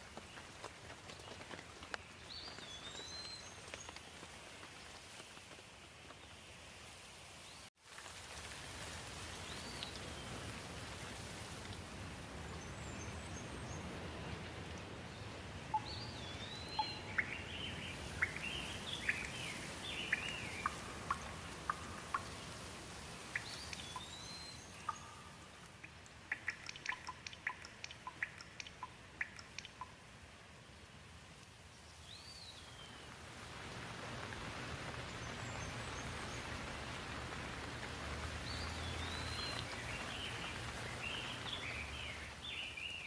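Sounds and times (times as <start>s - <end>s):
steady rain: 0.0s - 43.0s
sharp water drips: 15.6s - 30.2s, 33.1s - 43.0s.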